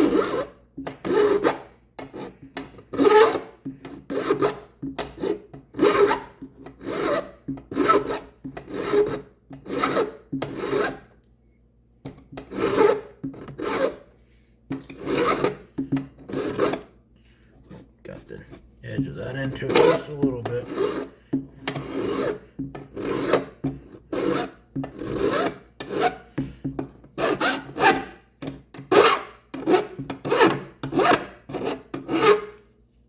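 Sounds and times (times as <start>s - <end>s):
file rasping on metal: 0.0s - 11.1s, 12.4s - 14.1s, 14.8s - 15.6s, 16.2s - 16.9s, 20.6s - 26.2s, 27.1s - 28.1s, 28.8s - 32.6s.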